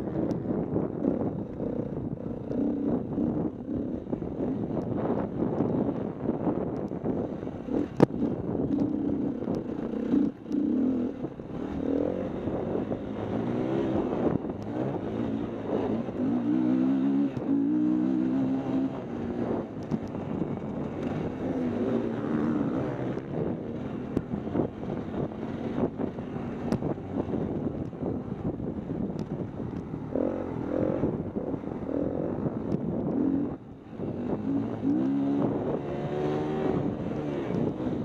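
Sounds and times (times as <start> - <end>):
wind on microphone: 0.0 - 38.0
dirt bike engine revving: 7.7 - 19.7, 30.0 - 38.0.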